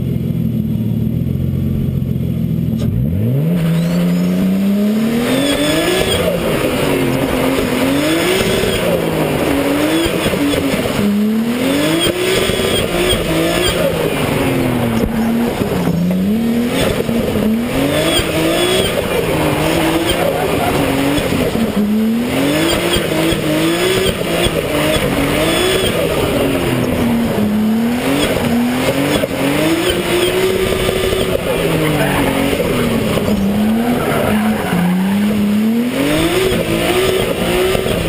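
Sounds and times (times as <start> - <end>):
car engine revving: 0.0 - 38.0
tyre squeals: 3.6 - 4.6, 17.9 - 21.3, 26.7 - 35.5.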